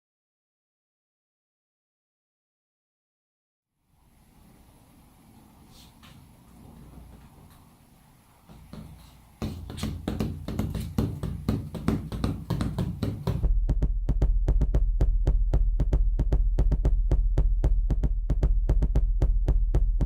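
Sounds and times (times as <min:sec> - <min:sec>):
percussive beat of taps and knocks: 0:08.5 - 0:13.5, 0:14.4 - 0:20.0
deep bass pulse: 0:13.4 - 0:20.0.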